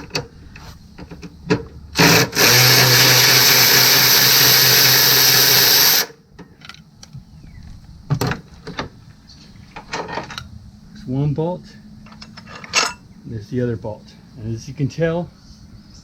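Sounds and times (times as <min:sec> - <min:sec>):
power tool running: 0:01.9 - 0:06.2.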